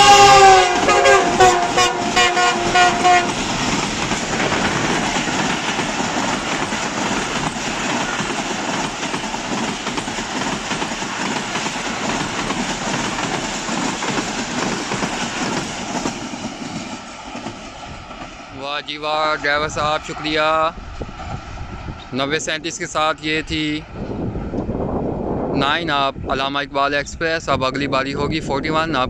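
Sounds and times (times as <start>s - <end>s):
locomotive horn toots: 0.0s - 3.4s
train coaches rattling past: 0.0s - 24.5s.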